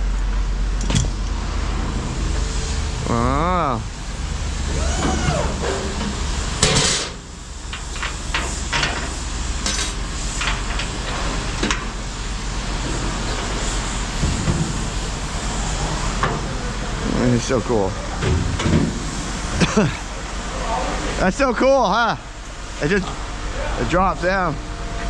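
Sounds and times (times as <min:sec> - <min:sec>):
vehicle engine idling: 0:00.0 - 0:25.0
loud metal bang: 0:05.0 - 0:07.3
metal clanking and knocking: 0:05.0 - 0:12.0, 0:18.2 - 0:19.8.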